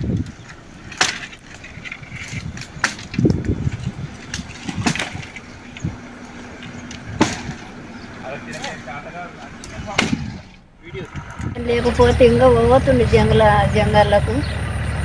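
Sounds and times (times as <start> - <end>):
knocks and clattering: 0.0 - 7.8, 9.4 - 11.6.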